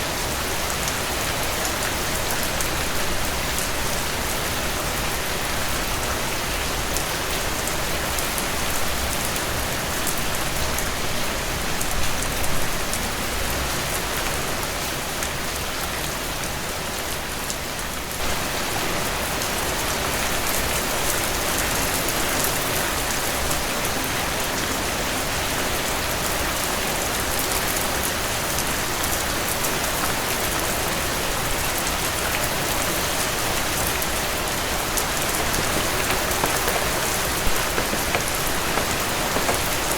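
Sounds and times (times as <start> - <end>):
heavy rain hissing: 34.8 - 39.9
rain drop taps: 35.2 - 39.9.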